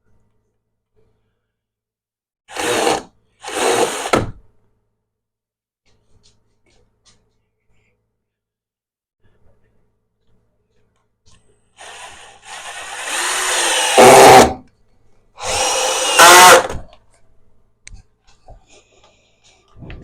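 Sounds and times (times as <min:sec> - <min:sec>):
power drill running: 0:02.5 - 0:04.2, 0:11.8 - 0:14.6, 0:15.4 - 0:16.8.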